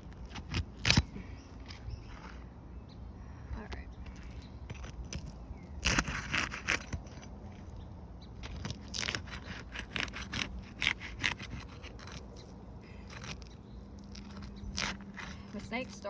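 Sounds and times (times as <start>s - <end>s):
bar scraping under shingles: 4.0s - 7.7s, 8.4s - 16.0s.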